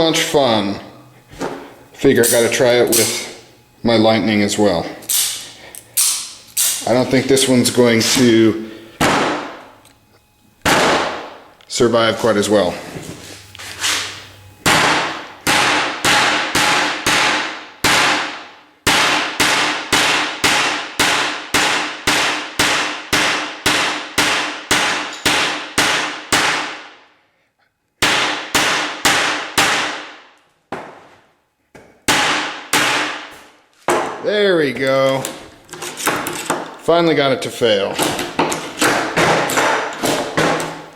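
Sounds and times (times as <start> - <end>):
hammer striking knife: 2.3 - 3.3, 5.1 - 6.9.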